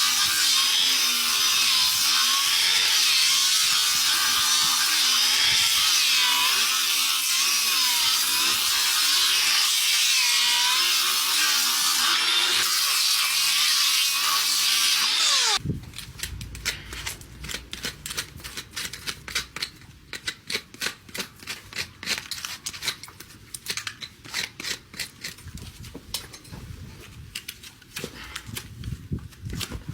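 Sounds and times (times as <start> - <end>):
power tool whining: 0.0 - 15.6.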